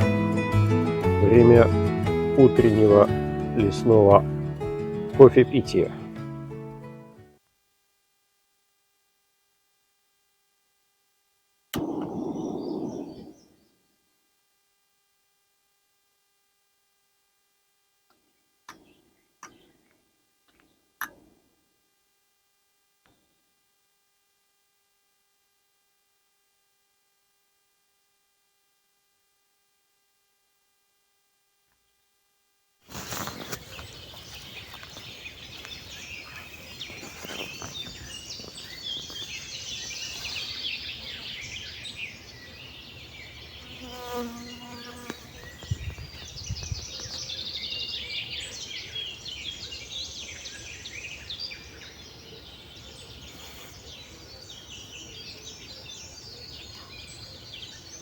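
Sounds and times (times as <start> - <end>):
birds singing and chirping: 11.9 - 13.7, 33.1 - 58.0
insects buzzing: 32.9 - 49.2.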